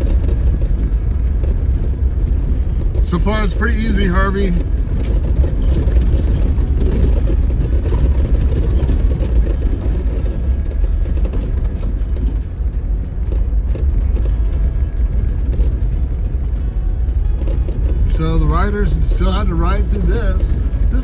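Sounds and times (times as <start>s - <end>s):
faint clicks and rattles: 0.0s - 21.0s
vehicle engine and tyres rumbling: 0.0s - 21.0s.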